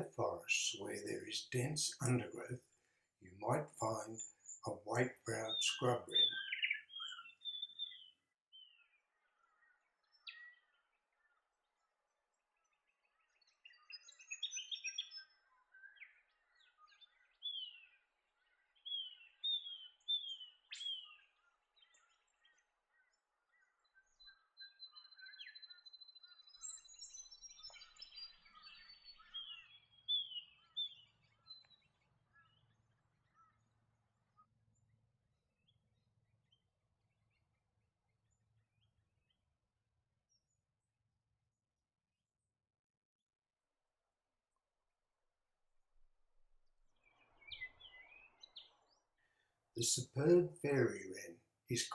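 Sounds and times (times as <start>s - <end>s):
bird chirping and chattering: 3.4s - 8.0s.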